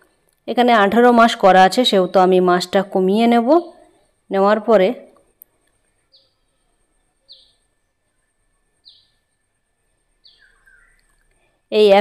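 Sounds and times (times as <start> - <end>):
small bird chirping: 6.0 - 9.4, 10.2 - 11.3.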